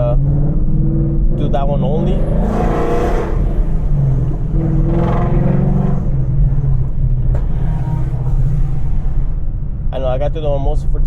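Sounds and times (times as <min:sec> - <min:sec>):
car engine exhaust rumble: 0:00.0 - 0:11.0.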